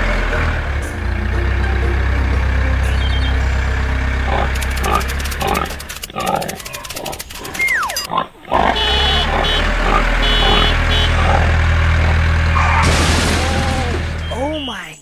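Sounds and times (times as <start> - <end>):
tractor engine: 0.0 - 14.9
pig grunting and oinking: 4.2 - 12.8.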